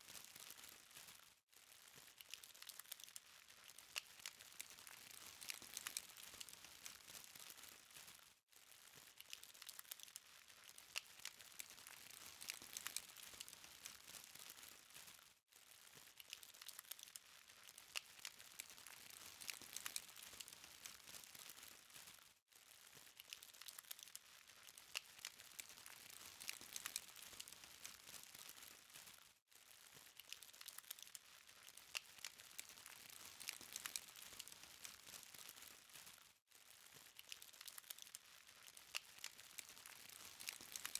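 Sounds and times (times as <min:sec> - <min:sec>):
burning charcoal crackling: 0:01.8 - 0:08.2, 0:22.9 - 0:29.2, 0:29.8 - 0:40.9.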